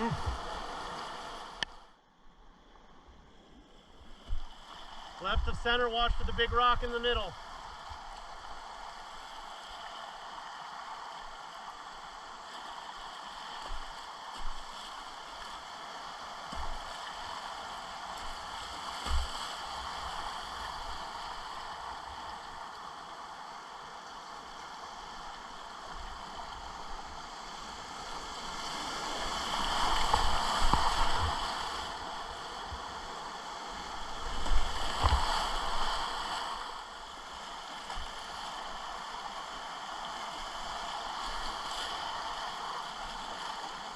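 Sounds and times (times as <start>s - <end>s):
whitewater rapids rushing: 0.0s - 1.6s, 28.0s - 43.9s
water splashing: 7.2s - 21.6s, 28.2s - 33.1s, 33.8s - 39.6s.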